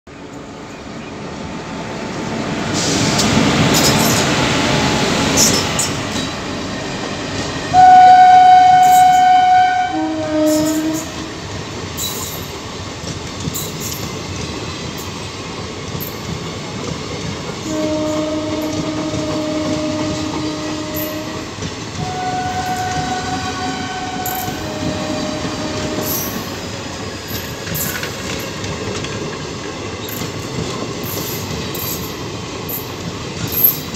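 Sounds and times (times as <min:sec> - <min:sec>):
train rumbling over rails: 0:00.1 - 0:33.9
train horn blasts: 0:07.7 - 0:11.4, 0:17.6 - 0:26.5.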